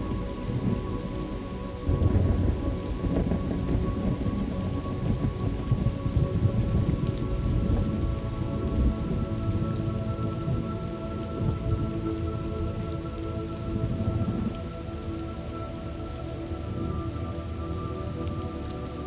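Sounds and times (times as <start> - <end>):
rolling thunder rumble: 0.0 - 15.2
steady rain: 0.0 - 19.0.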